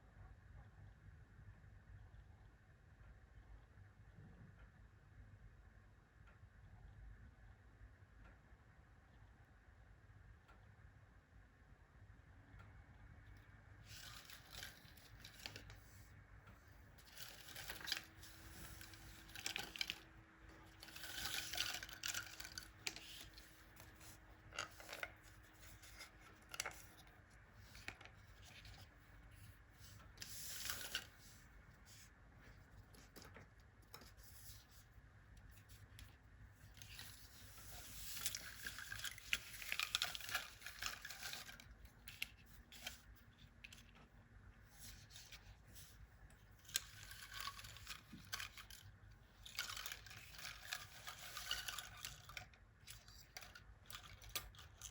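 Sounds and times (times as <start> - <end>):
scraping and tearing handwork: 13.8 - 16.1, 16.8 - 34.9, 35.5 - 44.0, 44.7 - 54.9.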